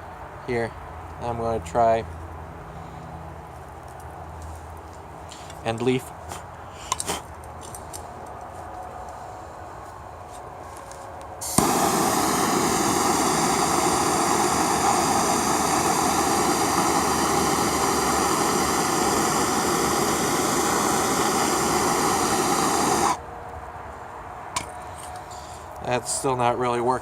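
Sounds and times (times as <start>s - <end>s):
gas torch flame hissing: 11.4s - 23.2s.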